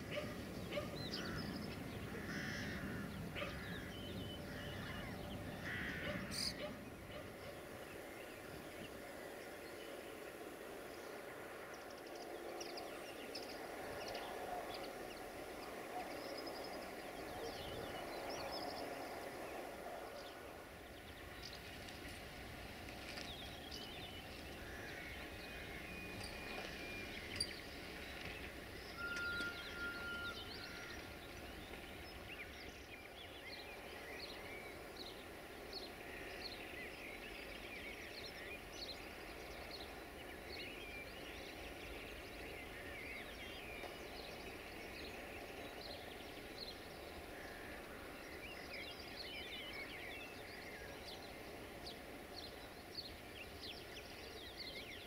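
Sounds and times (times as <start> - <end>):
birds chirping and singing: 0.0 - 10.1, 23.0 - 55.0
faint background noise: 0.0 - 55.0
whistle-like tone: 29.0 - 30.4.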